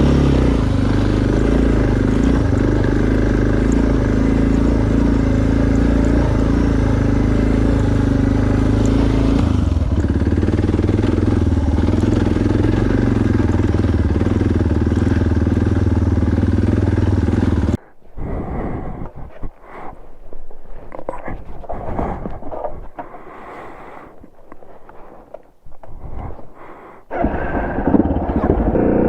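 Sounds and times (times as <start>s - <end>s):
motorcycle engine running: 0.0s - 17.8s, 27.1s - 29.0s.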